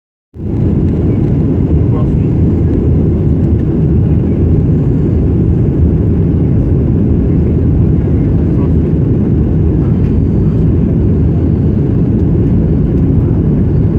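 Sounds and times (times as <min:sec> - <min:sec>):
airliner cabin engine rumble: 0:00.4 - 0:13.9.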